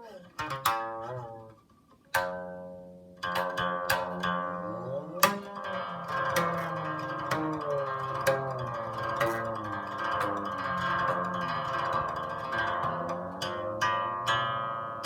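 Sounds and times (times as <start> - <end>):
plucked zither notes: 0.0 - 15.0.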